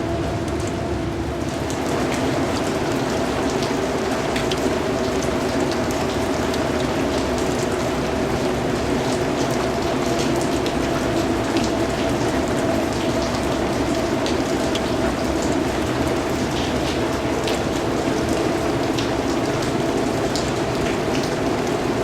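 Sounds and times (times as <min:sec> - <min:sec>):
steady rain falling: 0:00.0 - 0:22.0
raindrops ticking: 0:00.1 - 0:22.0.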